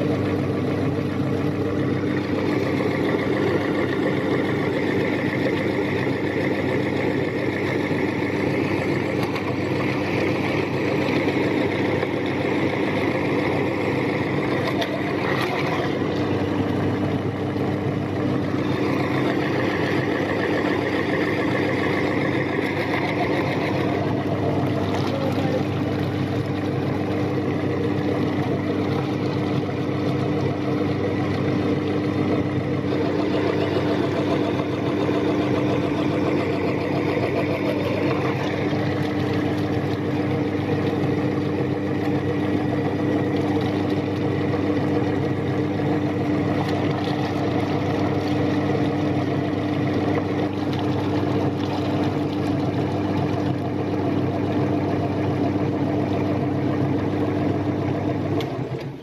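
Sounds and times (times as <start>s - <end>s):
electric meat grinder running: 0.0s - 59.0s.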